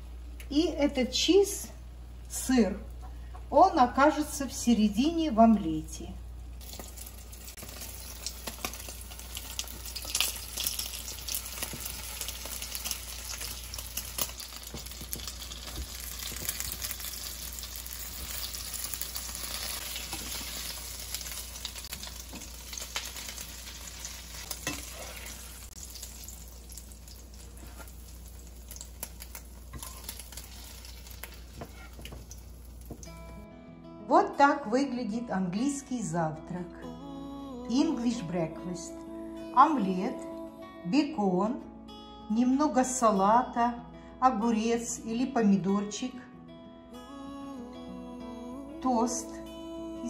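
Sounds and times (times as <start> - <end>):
eggs sizzling in a frying pan: 6.6 - 33.3.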